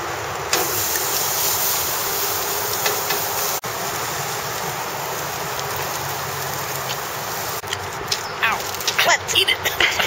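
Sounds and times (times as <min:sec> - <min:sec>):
food sizzling on a grill: 0:00.0 - 0:10.0.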